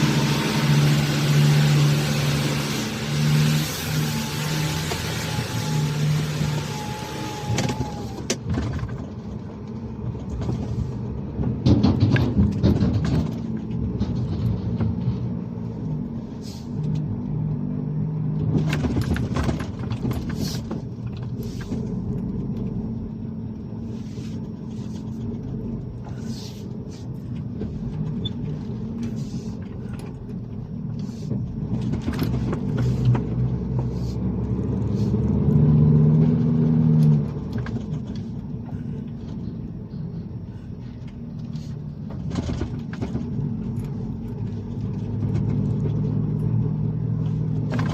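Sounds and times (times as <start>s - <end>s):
truck engine rumbling: 0.0s - 47.9s
rattles and knocks: 7.6s - 15.5s, 18.4s - 22.0s, 42.0s - 46.3s.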